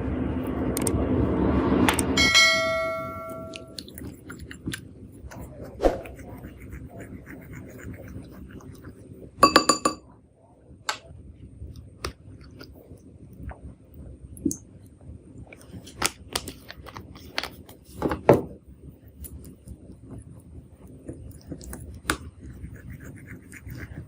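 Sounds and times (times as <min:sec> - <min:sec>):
utensil clinking against bowl: 0:02.2 - 0:03.9, 0:09.4 - 0:10.0.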